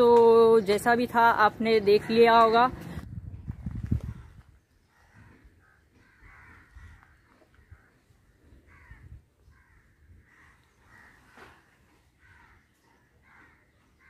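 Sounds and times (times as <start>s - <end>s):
faint bird calls: 4.1s - 14.0s.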